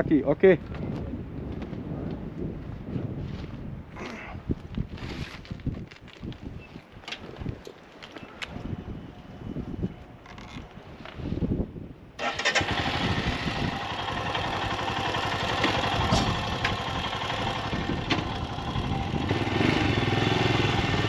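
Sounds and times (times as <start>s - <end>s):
motorcycle engine starting: 12.2s - 21.0s.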